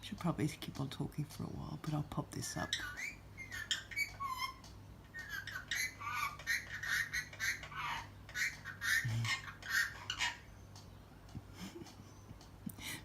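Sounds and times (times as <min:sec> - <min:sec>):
parrot talking: 0:02.4 - 0:10.4.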